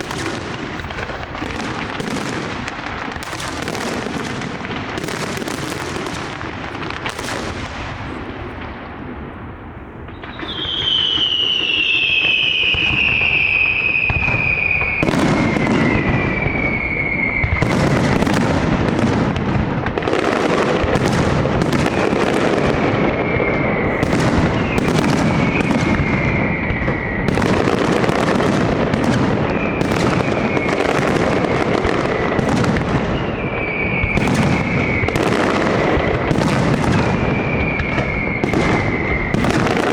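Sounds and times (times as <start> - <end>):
firework bursts and crackling: 0.0 - 39.9
firework whistles sliding down: 10.1 - 18.5, 23.0 - 39.9.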